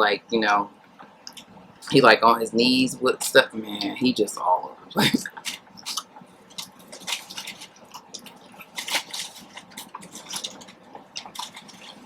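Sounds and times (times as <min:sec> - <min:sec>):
wet chewing and lip-smacking: 0:05.3 - 0:12.0.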